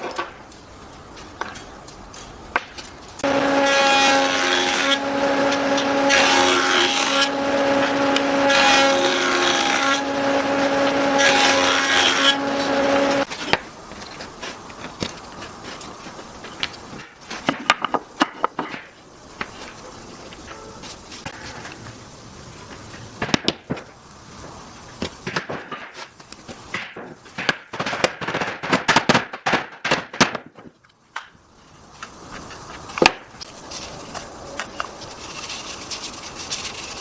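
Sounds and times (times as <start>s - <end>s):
power tool cutting wood: 3.2s - 13.3s.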